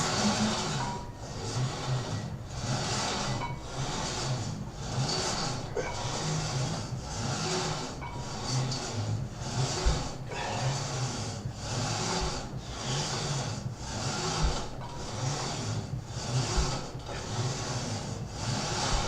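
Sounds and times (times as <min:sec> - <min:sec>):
cable running through pulleys: 0:00.0 - 0:19.0
weight stack thud: 0:07.6 - 0:11.0, 0:14.0 - 0:19.0.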